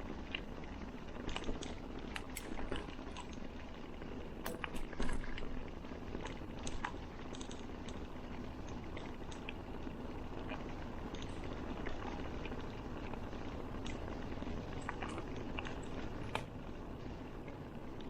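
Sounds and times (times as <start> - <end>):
bicycle tyres rumbling: 0.0 - 18.0
bicycle clicks and rattles: 4.4 - 5.6, 6.2 - 9.5.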